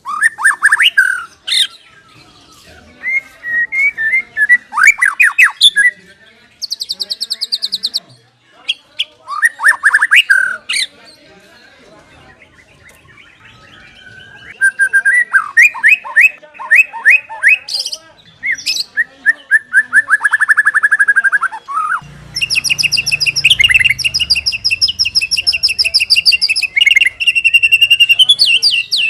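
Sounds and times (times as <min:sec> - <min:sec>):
bird singing whistled trills: 0:00.0 - 0:05.9, 0:09.3 - 0:10.6, 0:12.4 - 0:17.8, 0:18.4 - 0:29.0.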